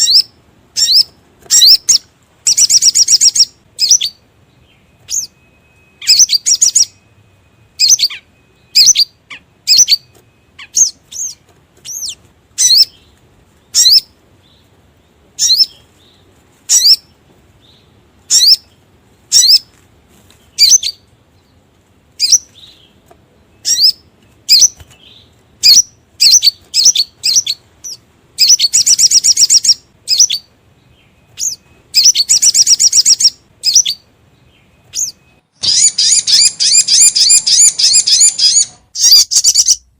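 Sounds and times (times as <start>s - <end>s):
high bird chirps: 0.0s - 14.7s, 15.3s - 19.7s, 20.4s - 21.6s, 22.2s - 39.9s
fast buzzing bird trill: 35.0s - 39.8s.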